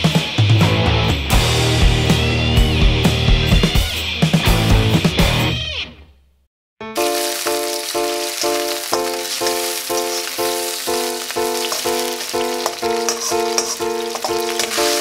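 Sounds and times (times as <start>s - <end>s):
background music: 6.9s - 15.0s
shrimp sizzling in oil: 7.0s - 15.0s.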